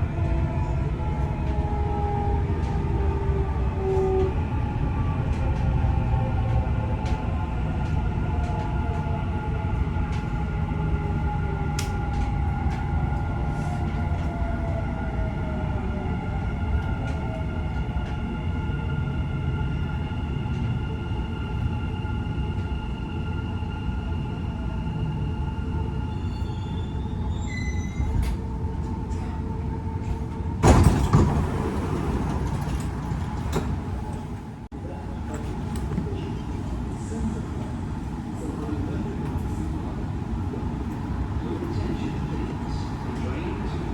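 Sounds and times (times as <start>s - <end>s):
train rumbling: 0.0s - 43.9s
sliding doors opening rush: 27.4s - 43.9s.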